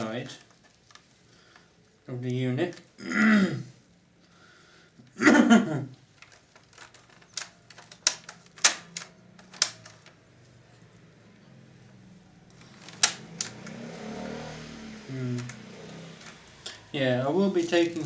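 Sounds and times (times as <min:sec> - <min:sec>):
plastic parts clicking: 0:06.1 - 0:10.2, 0:12.5 - 0:13.8, 0:15.4 - 0:15.6, 0:16.2 - 0:18.0.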